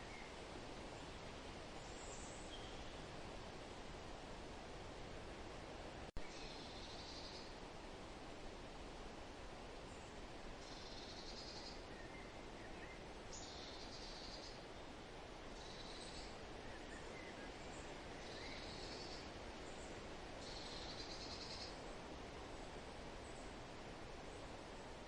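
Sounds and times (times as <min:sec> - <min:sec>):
wind rustling in forest: 0:00.0 - 0:25.0.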